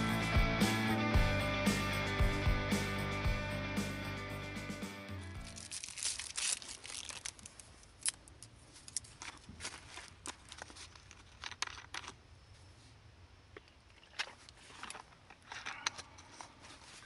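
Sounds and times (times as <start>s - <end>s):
rustling and crinkling: 5.4s - 17.0s.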